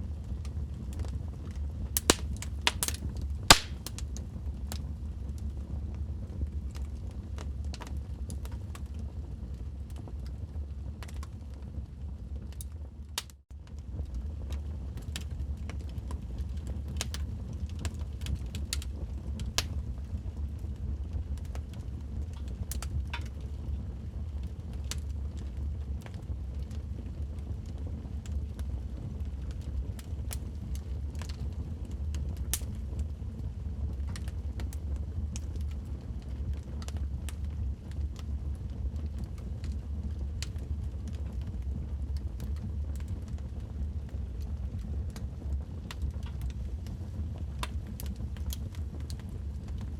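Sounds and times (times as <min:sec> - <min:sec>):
fire crackles and pops: 0:00.0 - 0:49.9
fire low rumble: 0:00.0 - 0:49.9.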